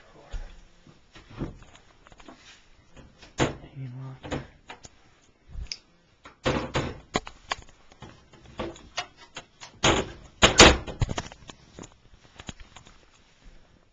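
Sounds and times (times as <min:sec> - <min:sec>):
wooden doors knocking and clattering: 0:03.0 - 0:03.6, 0:06.4 - 0:07.1, 0:09.7 - 0:11.0.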